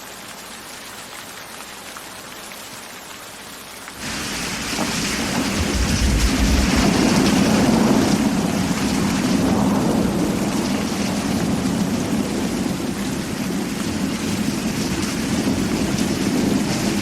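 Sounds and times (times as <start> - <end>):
steady rain: 0.0 - 17.0
rolling thunder rumble: 4.0 - 17.0.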